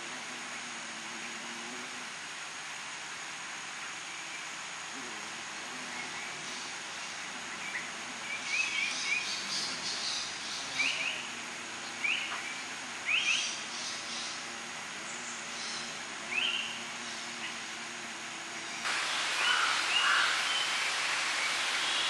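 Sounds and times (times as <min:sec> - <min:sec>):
steady background hiss: 0:00.0 - 0:22.0
birds chirping: 0:05.5 - 0:22.0.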